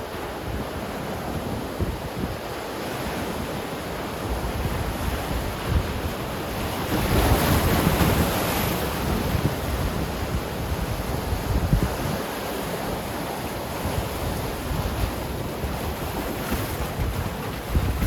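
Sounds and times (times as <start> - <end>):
ocean waves breaking on shore: 0.0 - 18.0
wind buffeting microphone: 0.0 - 18.0.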